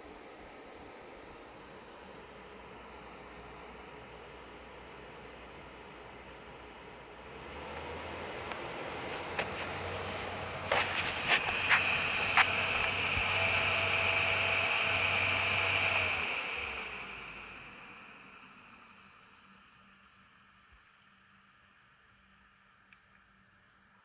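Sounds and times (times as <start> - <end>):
fan heater airflow: 6.4 - 18.3.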